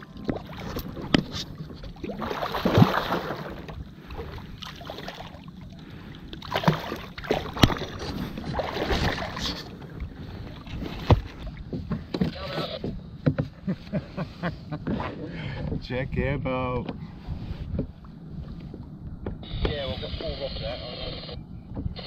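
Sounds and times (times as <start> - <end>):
water splashing and churning: 0.0 - 13.3.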